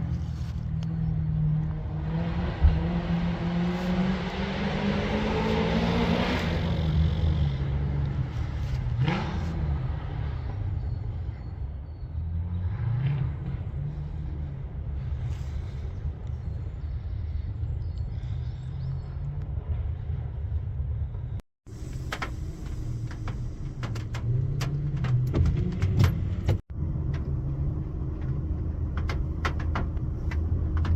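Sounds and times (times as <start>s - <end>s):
low engine rumble: 0.0s - 30.9s
engine revving: 1.6s - 10.8s.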